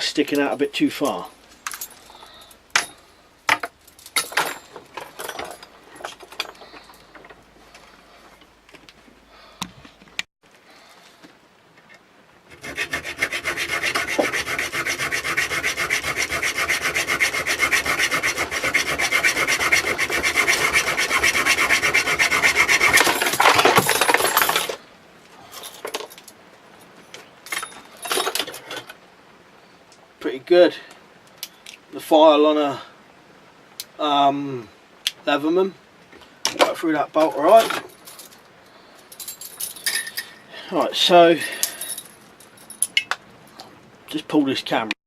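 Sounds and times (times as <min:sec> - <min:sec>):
file rasping on steel bolt: 0:12.5 - 0:23.7.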